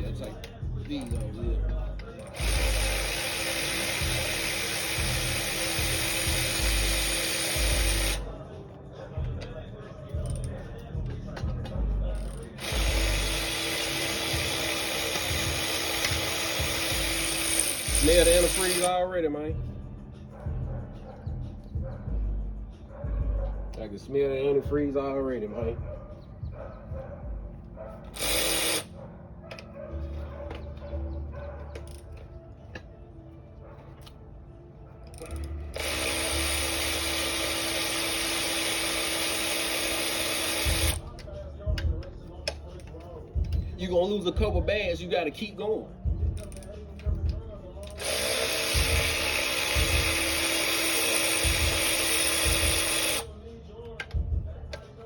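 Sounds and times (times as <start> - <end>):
power ratchet spinning: 0.0 - 8.3, 10.2 - 19.0, 28.0 - 28.9, 35.0 - 43.8, 46.3 - 53.3.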